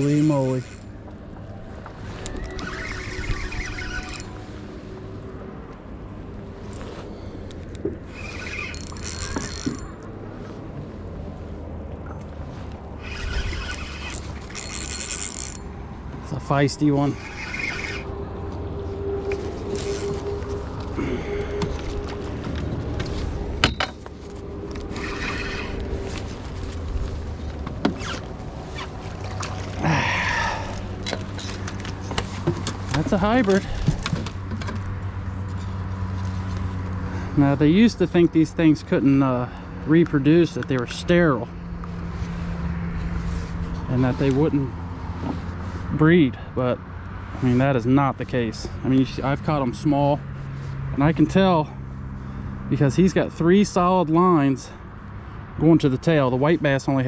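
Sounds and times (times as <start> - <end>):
fishing reel whirring and clicking: 2.3 - 4.4, 8.1 - 10.0, 13.0 - 15.6, 17.1 - 18.1, 19.7 - 20.2, 24.7 - 25.9
splashing and handling noise: 18.6 - 37.1.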